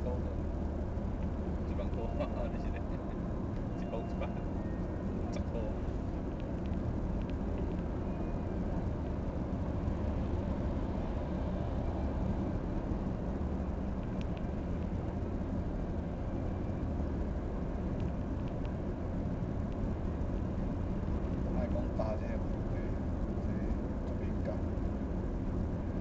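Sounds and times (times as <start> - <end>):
engine rumbling: 0.0 - 26.0
faint clicks: 6.3 - 7.9, 14.0 - 14.9, 18.0 - 18.8, 19.7 - 20.3.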